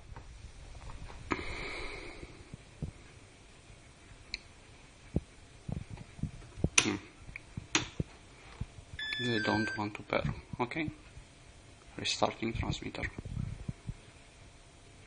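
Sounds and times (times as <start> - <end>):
short high beep: 9.0 - 9.9.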